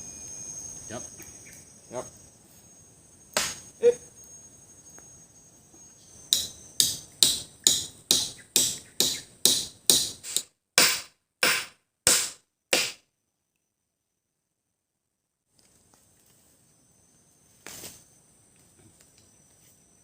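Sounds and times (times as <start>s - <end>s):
tool striking wood: 3.4s - 3.7s, 6.3s - 13.0s.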